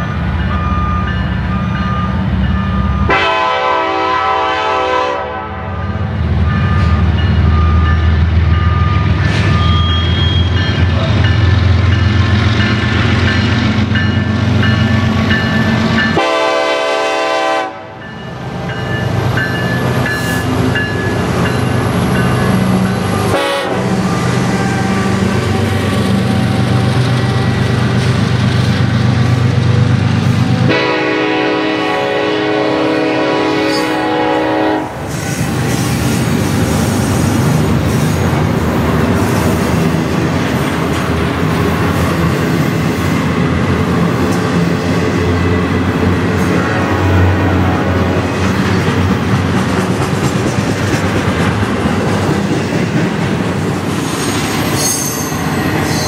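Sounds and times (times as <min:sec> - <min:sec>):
freight train rumbling past: 0:00.0 - 0:56.0
locomotive air horn: 0:03.1 - 0:05.8, 0:16.1 - 0:18.0, 0:23.2 - 0:25.8, 0:30.6 - 0:35.2, 0:46.4 - 0:48.3.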